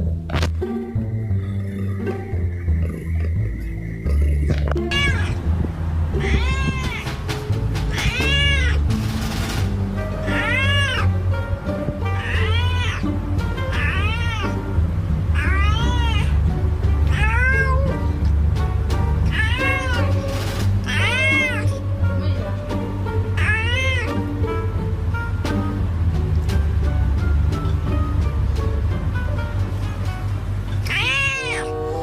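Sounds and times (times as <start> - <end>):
music with heavy bass: 0.0 - 32.0
cat meowing: 4.4 - 5.4, 6.1 - 8.9, 10.2 - 11.2, 12.2 - 13.1, 13.7 - 14.7, 15.3 - 16.4, 17.0 - 18.0, 19.2 - 22.5, 23.4 - 24.3, 30.8 - 32.0.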